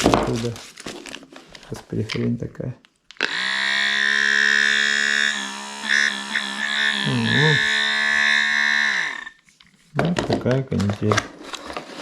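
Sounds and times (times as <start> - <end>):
electric pump whining: 3.2 - 9.4.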